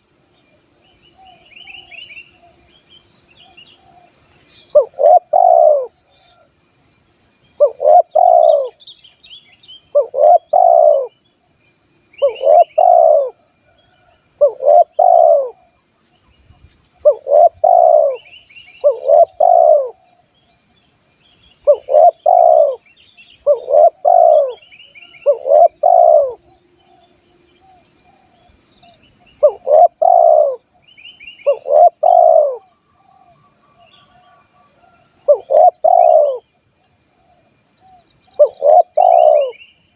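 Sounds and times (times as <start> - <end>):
faint small bird chirps: 0.0 - 39.9
high insect drone: 0.0 - 39.9
dove cooing: 4.7 - 6.5, 7.6 - 8.8, 9.9 - 11.2, 12.2 - 15.6, 17.0 - 20.2, 21.6 - 30.8, 31.4 - 36.4, 37.2 - 39.6.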